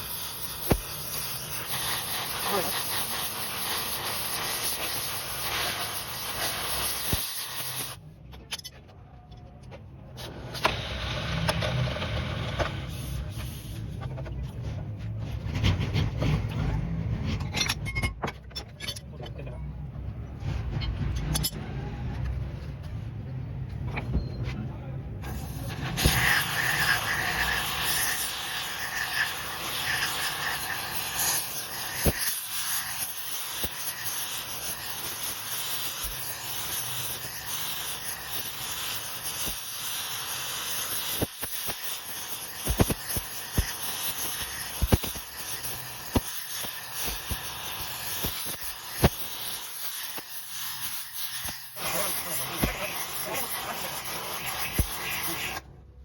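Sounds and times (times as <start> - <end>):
hissing rasping metalworking: 0.0 - 8.0, 25.2 - 55.6.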